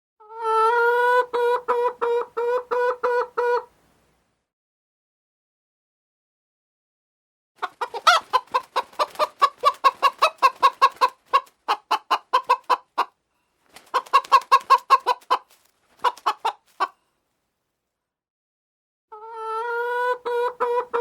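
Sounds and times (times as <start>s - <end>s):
chicken clucking: 0.2s - 3.7s, 7.6s - 17.0s, 19.1s - 21.0s.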